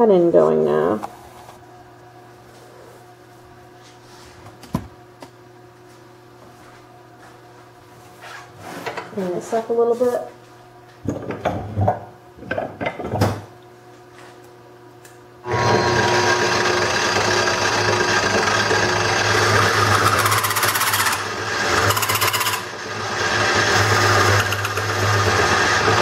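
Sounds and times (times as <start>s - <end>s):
wood lathe humming: 15.4s - 26.0s
turning tool cutting wood hiss: 16.9s - 26.0s.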